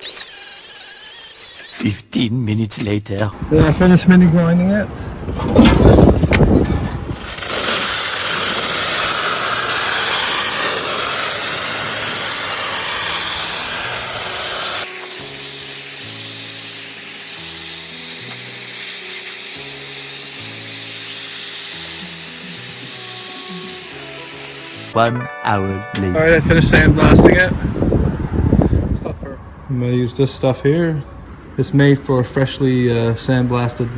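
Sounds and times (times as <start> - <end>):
sandblaster hissing: 0.0 - 1.8, 7.0 - 25.0
steady high whistle: 0.0 - 1.8.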